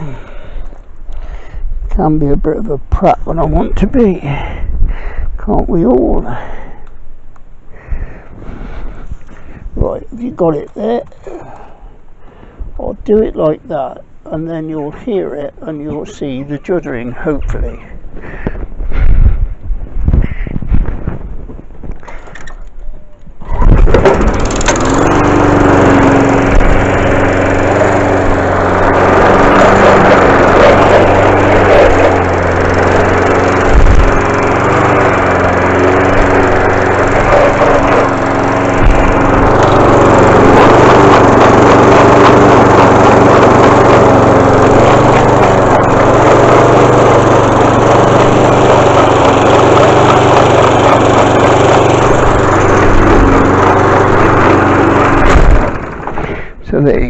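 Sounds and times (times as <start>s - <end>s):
lawn mower starting and running: 0.0s - 19.1s, 23.3s - 57.0s
gearbox juddering: 22.3s - 56.4s.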